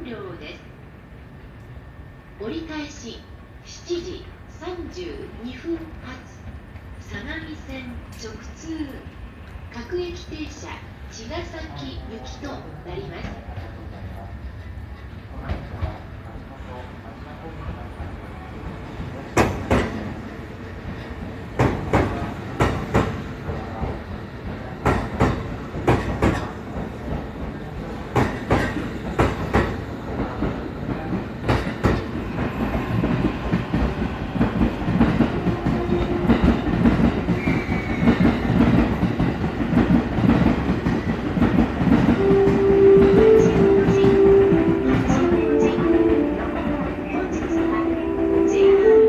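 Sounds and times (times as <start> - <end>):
train wheels clacking over rail joints: 19.0 - 20.2, 20.8 - 42.7.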